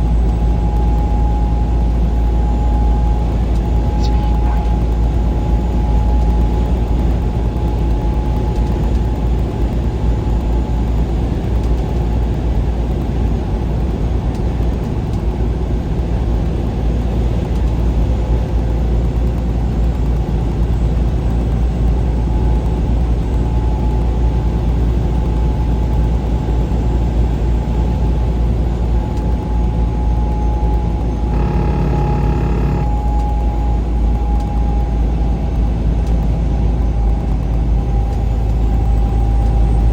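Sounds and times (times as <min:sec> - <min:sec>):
vehicle road and engine noise: 0:00.0 - 0:39.9
steady pitched tone: 0:31.3 - 0:32.9.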